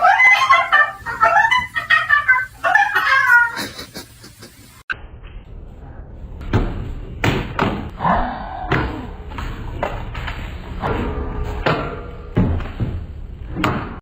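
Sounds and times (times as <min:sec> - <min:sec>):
knocks and thumps: 0:08.7 - 0:14.0.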